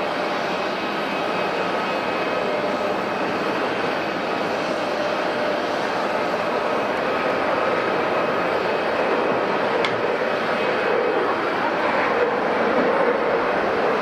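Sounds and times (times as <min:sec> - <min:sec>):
airliner engines rushing: 0:00.0 - 0:14.0.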